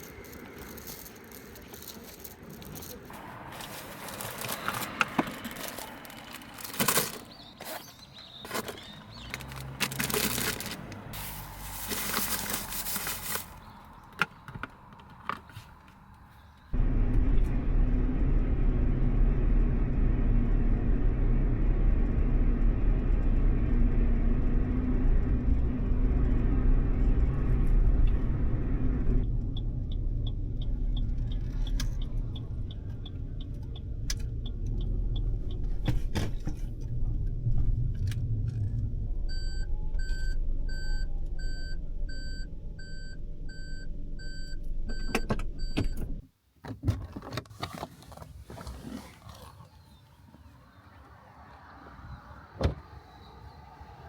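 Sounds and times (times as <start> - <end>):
handling clicks and rustling: 0.0 - 16.6, 46.6 - 49.7
car driving rumble from inside: 16.7 - 46.2.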